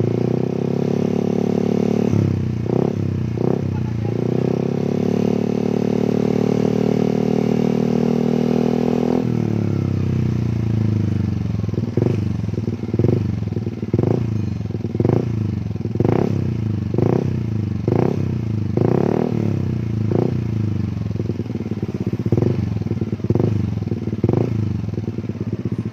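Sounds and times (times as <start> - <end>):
scooter engine revving: 0.0 - 25.9.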